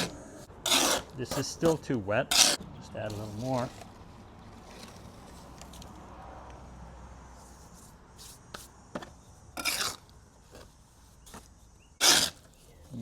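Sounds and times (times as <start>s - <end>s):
trowel mixing wet mortar: 0.0s - 4.0s, 9.6s - 10.0s, 12.0s - 13.0s
trowel scraping and chopping: 0.0s - 4.0s, 7.4s - 13.0s.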